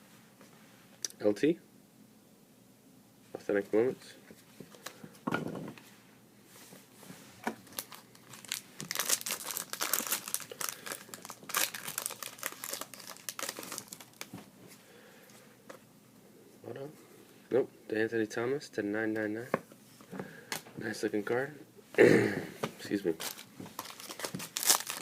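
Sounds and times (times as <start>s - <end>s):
wrapper crinkling and tearing: 7.6s - 14.4s, 23.2s - 25.0s.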